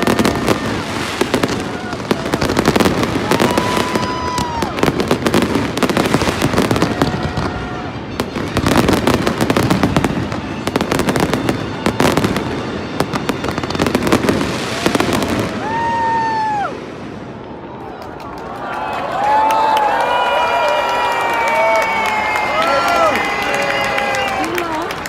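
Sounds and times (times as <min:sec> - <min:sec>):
firework whistles: 0:00.0 - 0:17.2
fireworks crackling and popping: 0:00.0 - 0:17.7.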